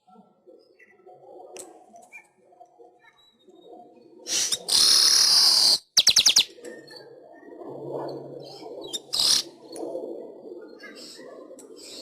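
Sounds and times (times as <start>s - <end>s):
bird buzzy song with clicks: 0.6s - 3.4s, 4.3s - 7.1s.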